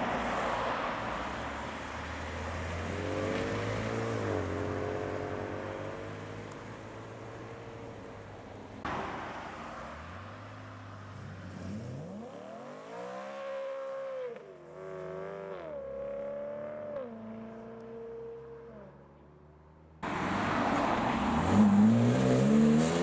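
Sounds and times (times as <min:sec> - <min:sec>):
car engine accelerating past: 0:20.1 - 0:23.0.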